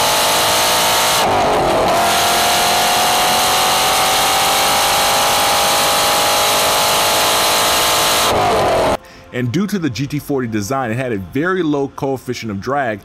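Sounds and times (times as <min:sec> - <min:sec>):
car engine at high revs: 0:00.0 - 0:09.0
wind rushing: 0:01.2 - 0:03.4.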